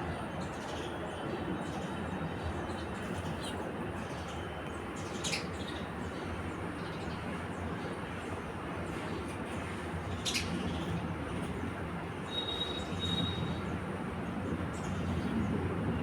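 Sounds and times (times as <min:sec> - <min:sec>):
sparrow chirps: 0:12.3 - 0:13.6.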